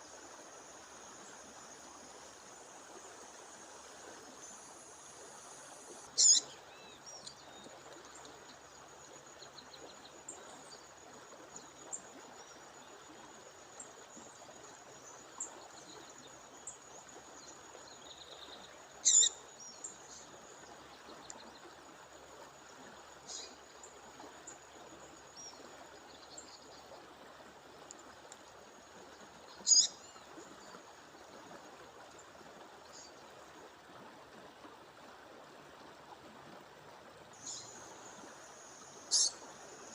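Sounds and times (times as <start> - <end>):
bird high calls: 6.2 - 6.5, 19.0 - 19.4, 29.6 - 30.0, 39.1 - 39.4
soft bird chirps: 6.2 - 7.7, 18.0 - 20.3, 29.5 - 30.2, 39.0 - 39.9.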